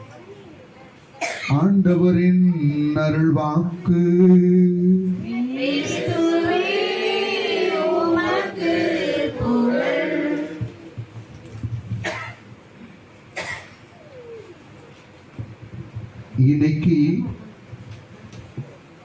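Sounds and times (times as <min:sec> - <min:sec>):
congregation singing: 0:05.1 - 0:11.0.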